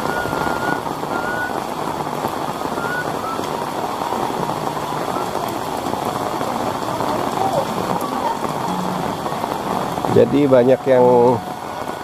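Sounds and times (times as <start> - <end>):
high whistling notes: 0.0 - 1.6, 2.7 - 3.5
heavy rain: 0.0 - 12.0.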